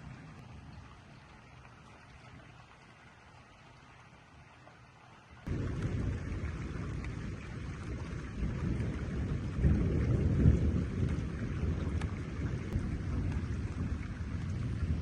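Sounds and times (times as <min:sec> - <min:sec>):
low thunder rumble: 0:05.5 - 0:15.0
thunder clap: 0:05.5 - 0:15.0.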